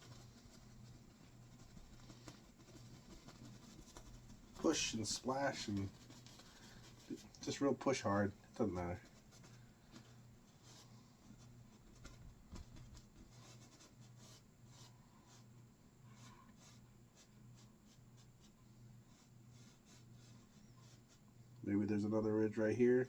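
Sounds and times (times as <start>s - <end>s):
paintbrush scratching through paint: 0.0s - 21.4s.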